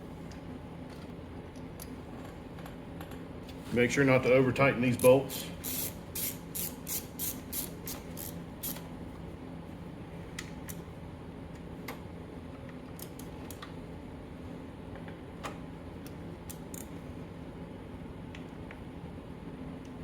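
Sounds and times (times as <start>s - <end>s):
ratchet clicking: 5.3s - 8.8s.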